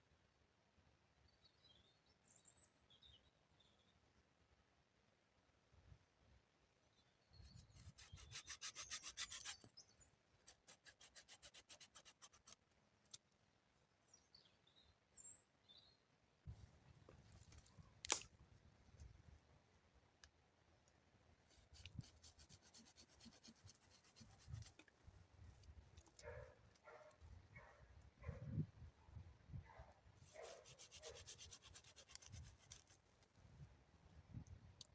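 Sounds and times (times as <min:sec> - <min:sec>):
rapid scraping strokes: 0:07.6 - 0:09.7, 0:30.2 - 0:33.0
sharp click: 0:18.0 - 0:18.3.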